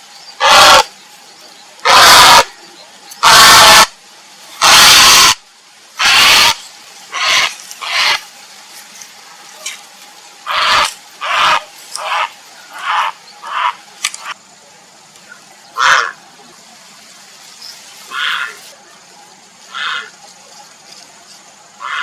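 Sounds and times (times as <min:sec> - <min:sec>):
herons croaking calls: 0:00.4 - 0:00.9, 0:01.8 - 0:03.9, 0:04.6 - 0:05.4, 0:06.0 - 0:08.2, 0:10.4 - 0:14.4, 0:15.7 - 0:16.2, 0:18.1 - 0:18.6, 0:19.7 - 0:20.2, 0:21.8 - 0:22.0.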